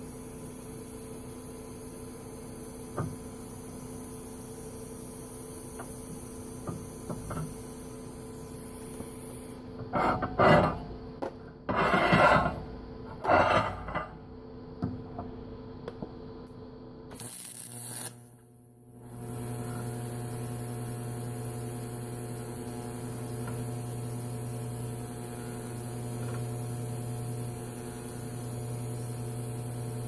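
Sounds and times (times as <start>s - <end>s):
welding arc hiss: 0.0s - 10.8s, 17.1s - 30.0s
welder hum: 0.0s - 11.1s, 11.7s - 14.2s, 15.9s - 30.0s
scraping on steel: 9.8s - 10.9s, 11.7s - 14.2s.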